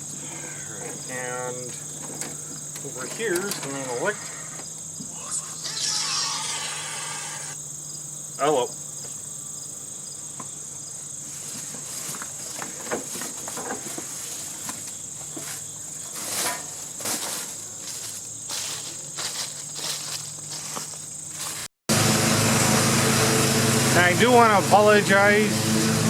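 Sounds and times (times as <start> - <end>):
insects droning: 0.0 - 25.8
rustles and light knocks: 1.6 - 4.0, 11.2 - 21.7.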